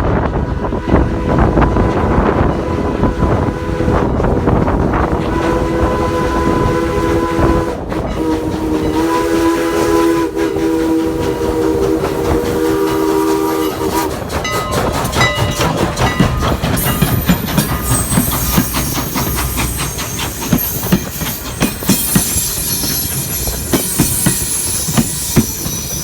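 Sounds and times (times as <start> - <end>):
train clicking and knocking: 0.0 - 26.0
steam locomotive whistle chord: 5.2 - 14.1.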